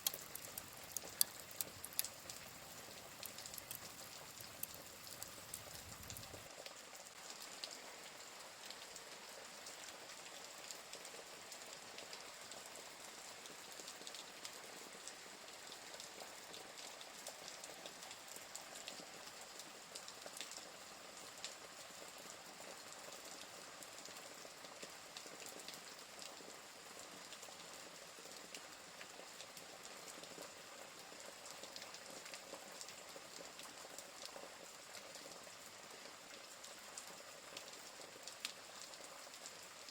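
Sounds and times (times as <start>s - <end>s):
wood fire crackling: 0.0s - 6.5s
rain hiss: 0.0s - 39.9s.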